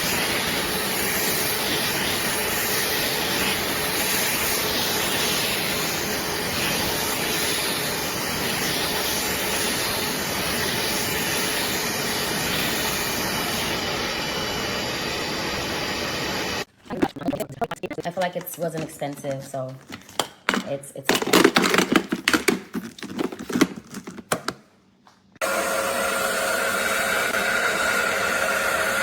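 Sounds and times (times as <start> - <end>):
carpet cleaner suction motor: 0.0 - 16.7, 25.4 - 29.0.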